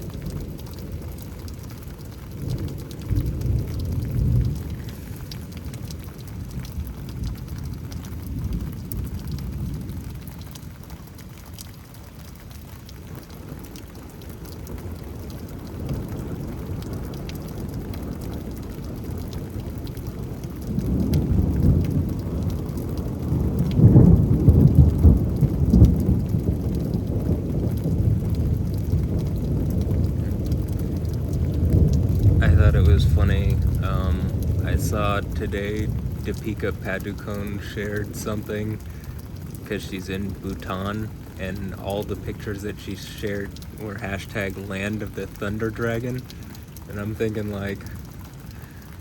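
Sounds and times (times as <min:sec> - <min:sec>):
steady rain: 0:00.0 - 0:49.0
thunder rumbling: 0:00.0 - 0:49.0.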